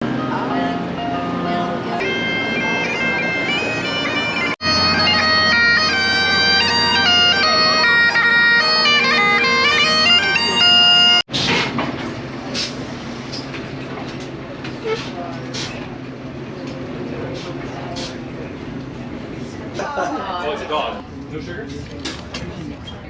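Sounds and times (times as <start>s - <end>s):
bagpipes playing a tune: 2.0s - 11.3s
noisy rumble: 20.9s - 23.0s.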